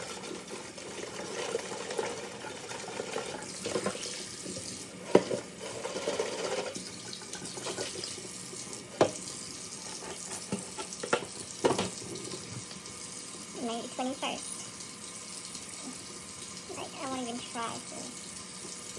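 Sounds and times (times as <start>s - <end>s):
liquid splashing into sink: 0.0s - 13.0s.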